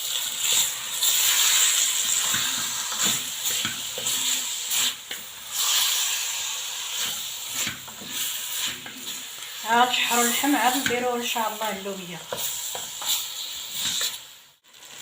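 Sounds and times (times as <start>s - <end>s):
tomatoes sizzling in oil: 0.0s - 15.0s.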